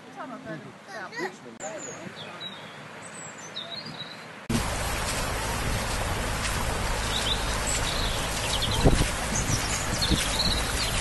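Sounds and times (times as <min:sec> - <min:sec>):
small birds chirping: 0:01.6 - 0:04.4, 0:06.8 - 0:11.0.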